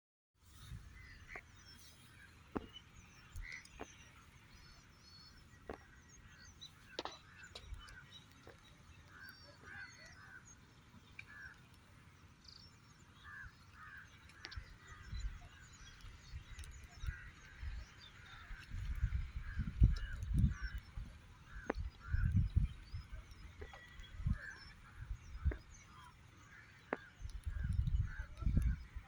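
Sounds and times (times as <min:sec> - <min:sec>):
birds chirping: 0:00.5 - 0:29.0
sharp clicks: 0:18.3 - 0:28.8.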